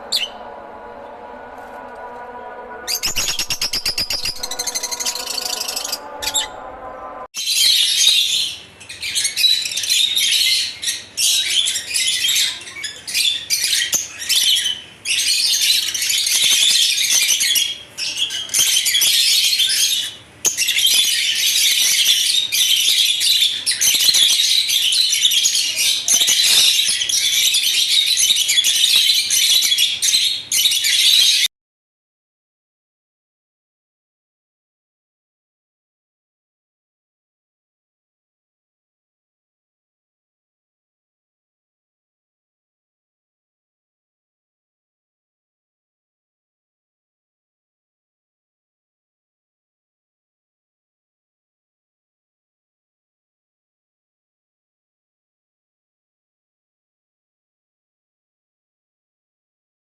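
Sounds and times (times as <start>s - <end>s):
lovebirds chirping: 2.9s - 6.7s.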